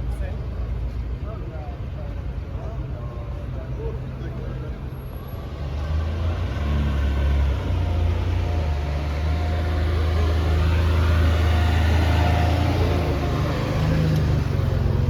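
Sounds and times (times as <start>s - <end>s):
car engine running: 7.4s - 15.0s.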